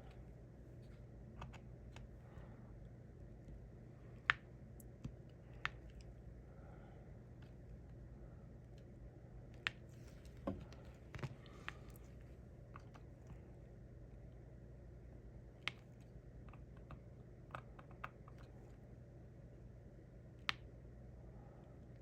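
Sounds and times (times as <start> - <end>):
faint low hum: 0.0 - 22.0
small clicks and taps: 15.6 - 18.8.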